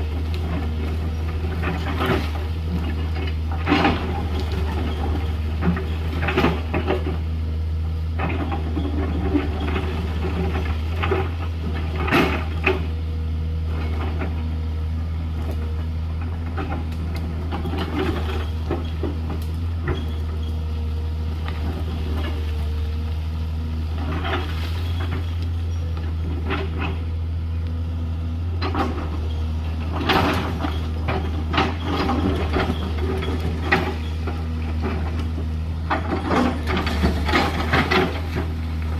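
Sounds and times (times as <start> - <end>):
excavator diesel engine droning: 0.0 - 38.9
bucket scraping gravel and stones: 23.8 - 27.1, 28.9 - 38.9.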